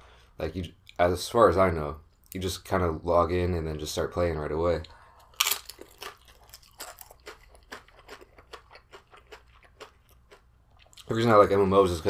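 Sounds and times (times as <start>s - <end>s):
crunchy chewing: 4.8s - 11.2s.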